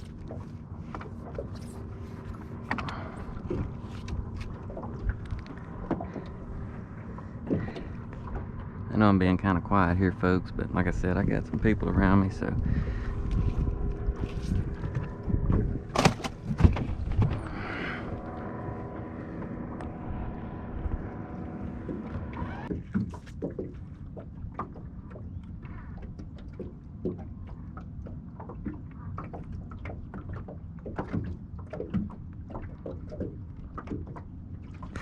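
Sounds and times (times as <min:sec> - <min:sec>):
electric trolling motor humming: 0:00.0 - 0:22.7
sharp knocks on boat: 0:14.9 - 0:17.4.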